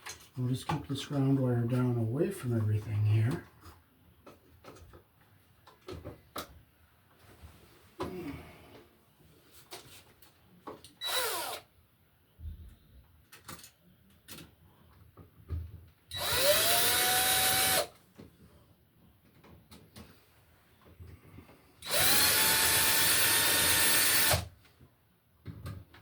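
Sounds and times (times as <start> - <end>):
cordless drill whirring: 11.0 - 11.7, 16.1 - 17.9, 21.8 - 24.5.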